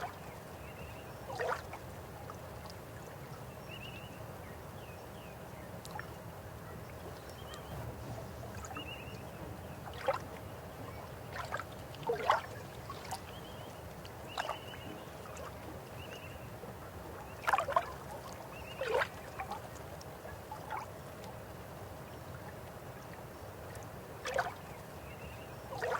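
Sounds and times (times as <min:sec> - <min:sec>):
water splashes and gurgles: 0:00.0 - 0:04.1, 0:05.8 - 0:25.9
river water flowing: 0:05.5 - 0:25.9.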